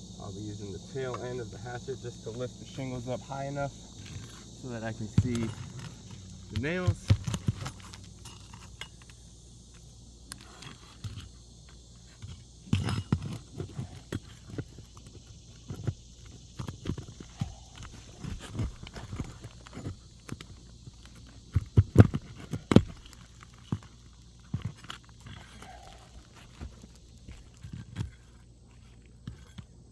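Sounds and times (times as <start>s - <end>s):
hatchet prying up shingles: 3.8s - 9.2s, 12.2s - 28.4s.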